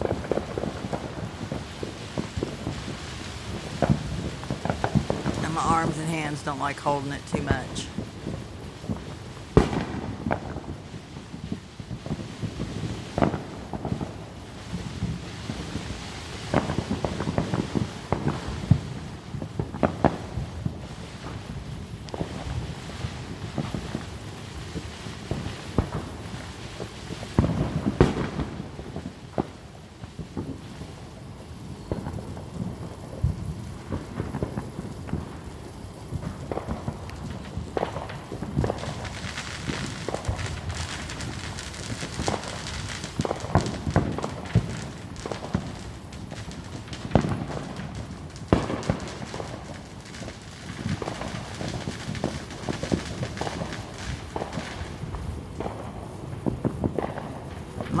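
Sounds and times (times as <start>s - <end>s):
fireworks bangs: 5.0s - 8.2s, 37.8s - 49.6s
rumbling crackle: 36.2s - 50.2s.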